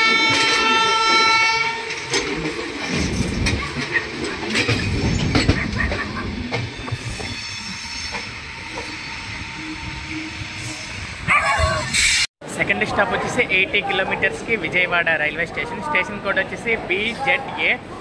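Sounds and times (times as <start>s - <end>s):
train horn: 0.0s - 2.2s, 7.7s - 11.1s
train coaches rumbling and clattering: 0.0s - 18.0s.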